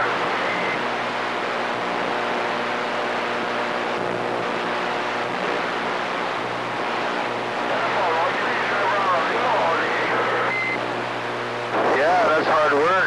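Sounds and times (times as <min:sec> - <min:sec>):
faint steady tones: 0:00.0 - 0:13.0
radio static hiss: 0:00.0 - 0:13.0.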